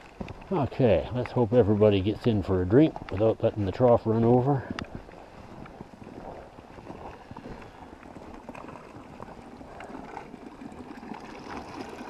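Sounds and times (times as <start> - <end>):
water splashing into trough: 8.3 - 12.0.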